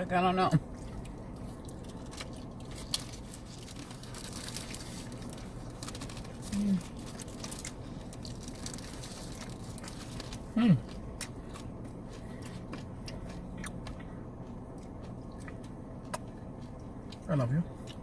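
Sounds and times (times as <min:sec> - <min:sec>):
chewing and eating: 0:00.4 - 0:18.0
food wrapper crinkling: 0:01.7 - 0:10.5
person humming: 0:06.5 - 0:06.8.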